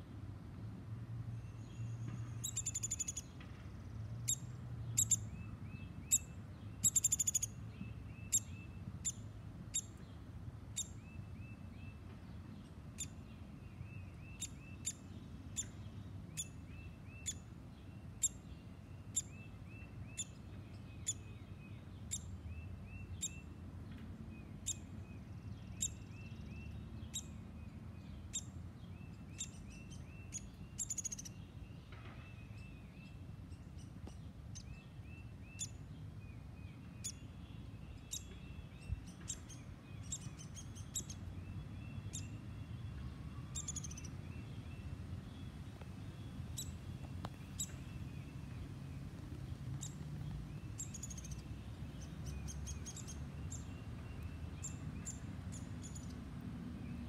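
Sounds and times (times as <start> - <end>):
woodpecker fledgling chirping: 2.4 - 3.3, 5.0 - 5.2, 6.0 - 10.0, 49.2 - 56.2.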